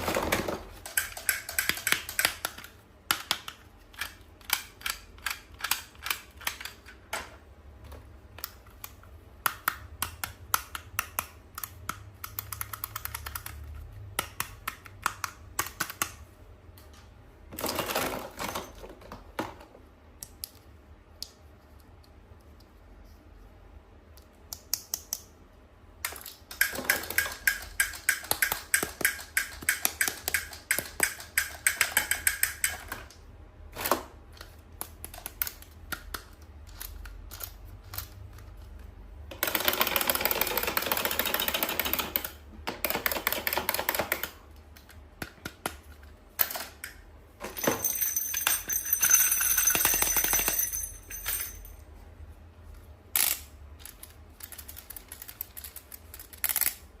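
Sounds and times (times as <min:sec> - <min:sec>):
toy clicks and taps: 0:26.1 - 0:32.9.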